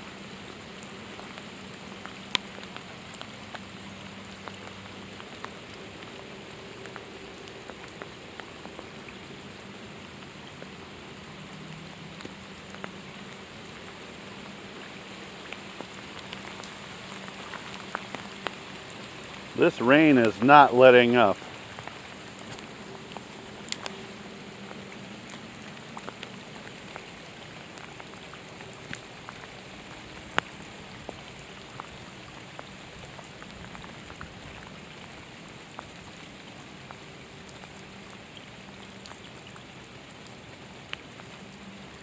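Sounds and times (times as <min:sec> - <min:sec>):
sharp rain ticks: 0:00.0 - 0:42.0
steady rain falling: 0:00.0 - 0:42.0.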